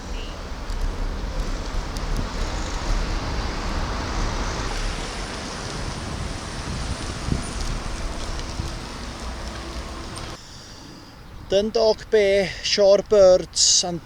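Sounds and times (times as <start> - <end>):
wind buffeting microphone: 0.0 - 10.4
road traffic passing: 0.0 - 11.3.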